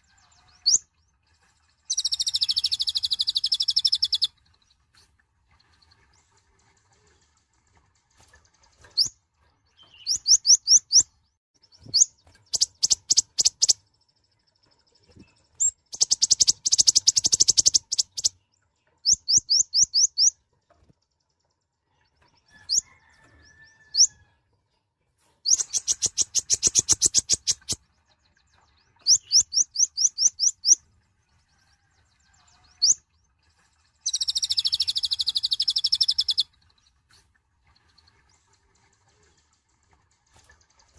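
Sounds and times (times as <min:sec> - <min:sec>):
bird chirping and trilling: 0:00.2 - 0:01.1, 0:01.8 - 0:04.6, 0:09.7 - 0:20.4, 0:22.5 - 0:24.3, 0:25.4 - 0:30.9, 0:32.3 - 0:33.1, 0:34.0 - 0:37.0.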